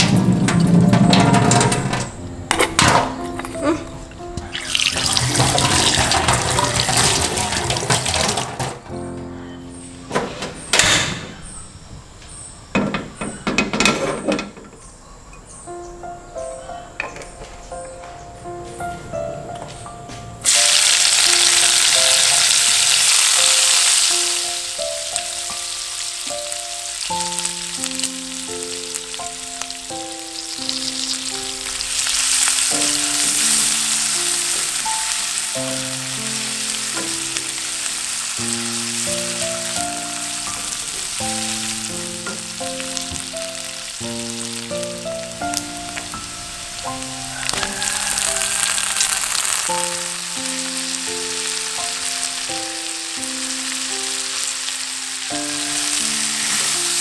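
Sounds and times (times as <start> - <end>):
food sizzling in hot oil: 4.5 - 8.8, 20.4 - 57.0.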